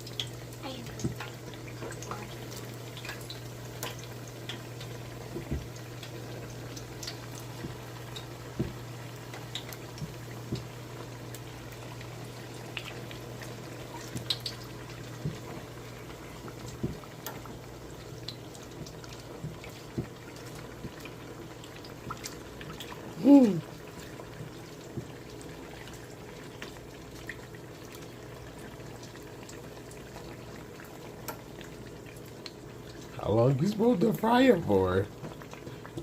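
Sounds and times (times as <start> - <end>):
dough deep-frying in hot oil: 0.0 - 36.0.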